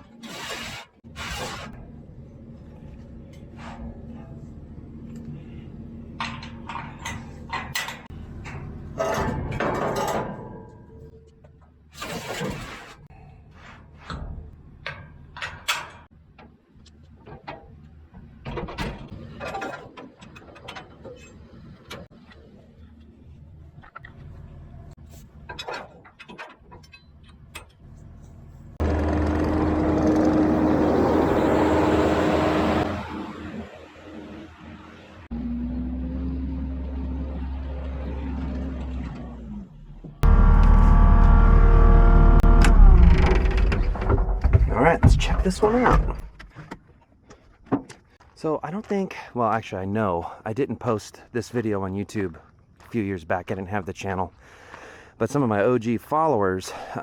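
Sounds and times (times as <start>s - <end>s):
diesel engine running low: 1.8s - 9.0s, 27.8s - 44.0s
engine running loudly: 28.8s - 33.3s, 40.2s - 42.8s
bucket scraping crashes: 42.4s - 46.6s.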